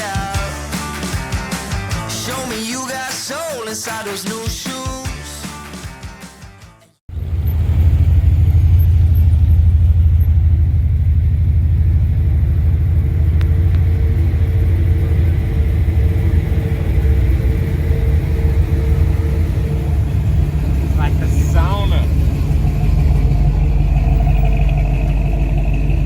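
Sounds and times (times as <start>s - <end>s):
vehicle engine rumbling: 7.1s - 26.0s.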